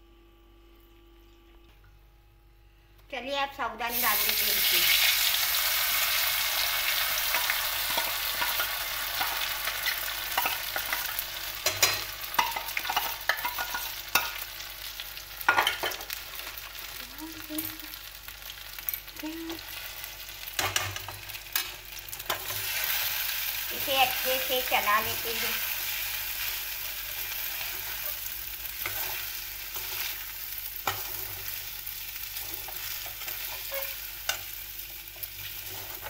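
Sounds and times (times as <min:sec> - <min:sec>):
pearls sizzling in hot oil: 0:03.8 - 0:36.0
spoon and ladle clinking on pan: 0:10.3 - 0:14.4.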